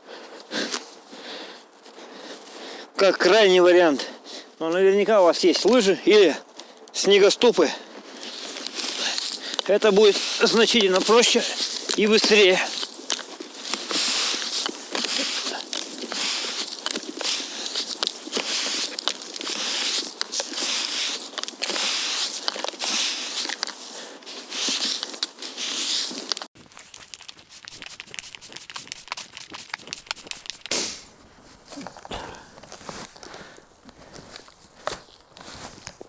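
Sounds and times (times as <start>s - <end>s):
snow crunching and scraping: 4.7s - 6.3s, 7.1s - 26.5s, 29.7s - 36.0s.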